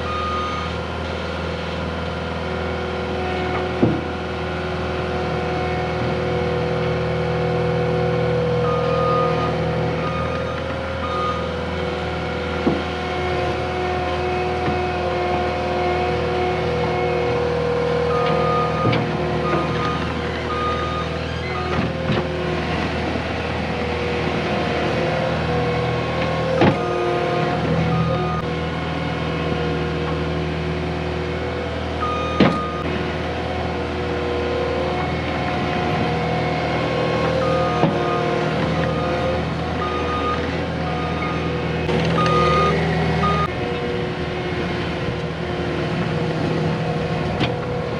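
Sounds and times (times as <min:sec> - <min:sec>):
diesel engine running: 0:00.0 - 0:47.9
backup alarm beeping: 0:42.2 - 0:43.5.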